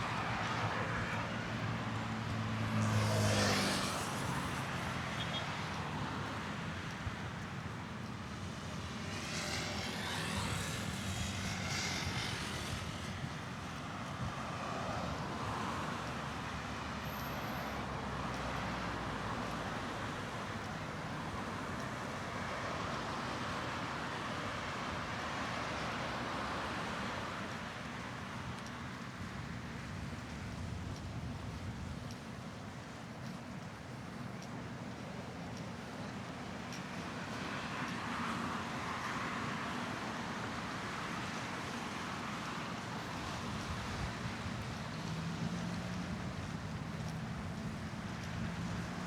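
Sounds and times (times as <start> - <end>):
city road traffic rumble: 0.0 - 49.0
passing vehicle hiss: 9.2 - 13.1.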